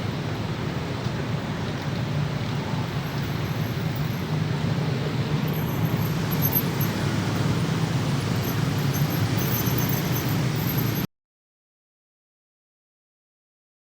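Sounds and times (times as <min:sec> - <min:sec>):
vehicle rumble: 0:00.0 - 0:11.1.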